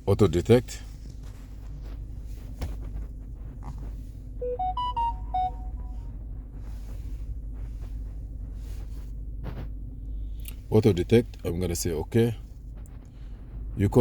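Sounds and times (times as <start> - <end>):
steady low hum: 0.0 - 14.0
electronic beeping chime: 4.4 - 6.0.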